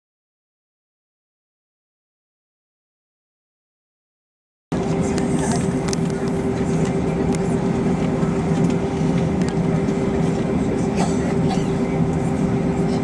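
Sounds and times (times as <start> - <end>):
airliner cabin drone: 4.7 - 13.0.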